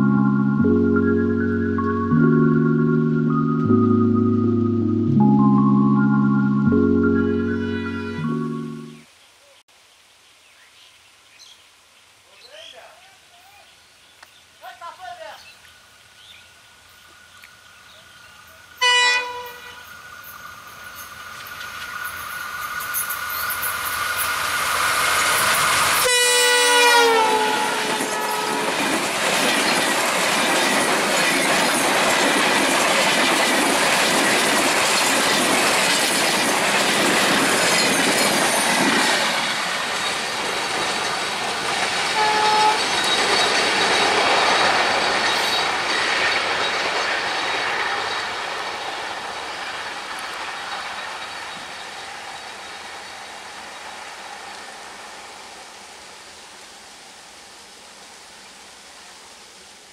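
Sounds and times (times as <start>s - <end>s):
train horn: 7.2s - 9.0s, 18.8s - 19.9s, 26.0s - 29.0s, 42.1s - 43.1s
clickety-clack of train wheels: 20.7s - 52.8s.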